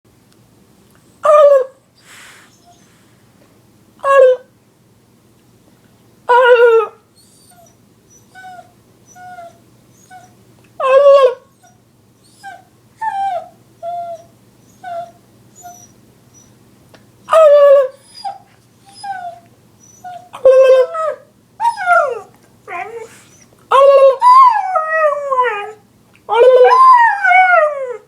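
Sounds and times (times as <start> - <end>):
dog whimpering and whining: 2.5 - 2.9, 6.3 - 16.6, 17.2 - 28.0.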